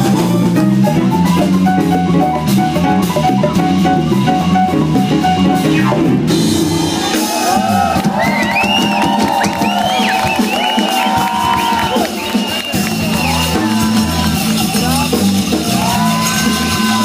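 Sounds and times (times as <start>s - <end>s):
live band playing: 0.0s - 17.0s
audience cheering: 6.6s - 17.0s
whistles rising and falling: 8.2s - 13.6s.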